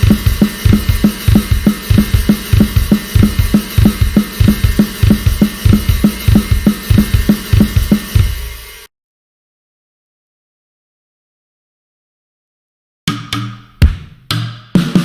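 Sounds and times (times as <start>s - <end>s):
cymbals washing: 0.0s - 8.9s
drum kit playing a steady beat: 0.0s - 8.9s, 13.1s - 15.0s.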